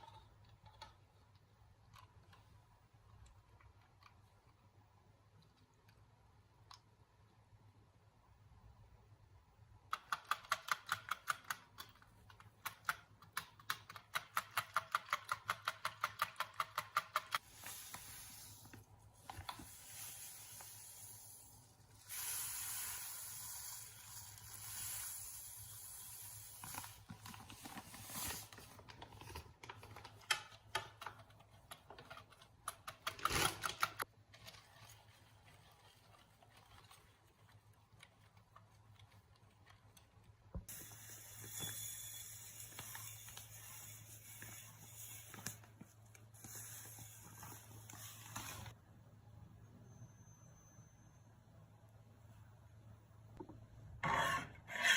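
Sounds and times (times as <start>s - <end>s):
steady hiss: 17.4s - 27.1s.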